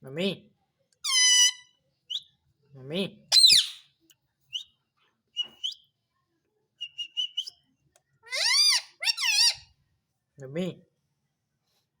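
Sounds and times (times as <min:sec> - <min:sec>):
parrot calls rising and falling: 0:03.3 - 0:03.8, 0:08.3 - 0:09.6
parrot chirping and whistling: 0:03.3 - 0:03.8, 0:05.4 - 0:05.8, 0:06.8 - 0:07.5, 0:08.3 - 0:09.6.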